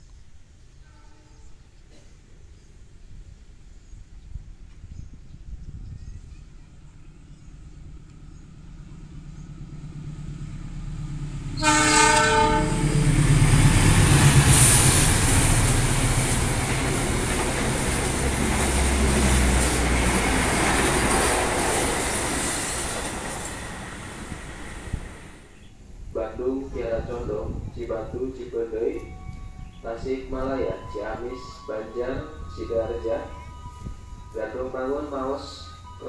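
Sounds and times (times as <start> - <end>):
train horn: 0.8 - 1.5, 11.6 - 13.1
locomotive rumble: 3.2 - 36.0
train wheels clattering on rails: 11.6 - 25.3.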